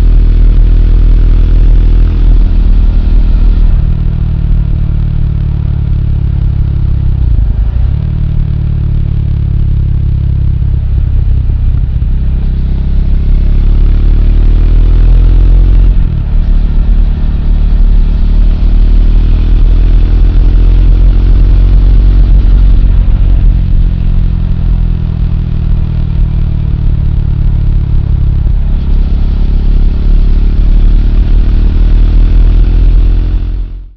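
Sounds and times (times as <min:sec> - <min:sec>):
motorcycle engine accelerating: 0:00.0 - 0:33.9.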